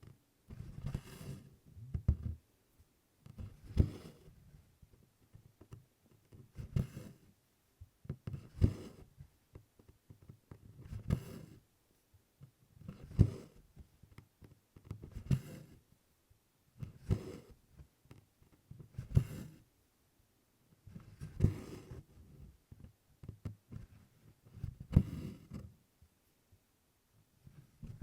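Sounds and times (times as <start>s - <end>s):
thread rasping through cloth: 3.2s - 4.4s, 8.0s - 11.6s, 16.8s - 19.6s, 22.7s - 25.7s, 27.6s - 28.0s.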